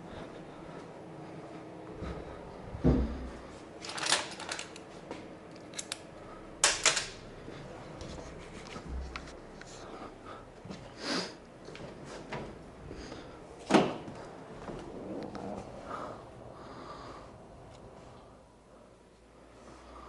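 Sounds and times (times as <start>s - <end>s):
small clicks of tools: 5.5s - 7.2s.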